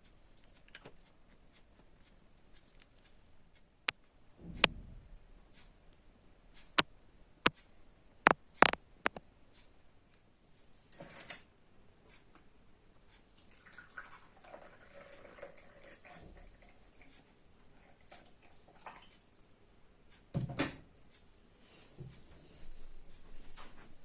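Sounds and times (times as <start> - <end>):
soft rustling: 21.1 - 24.0.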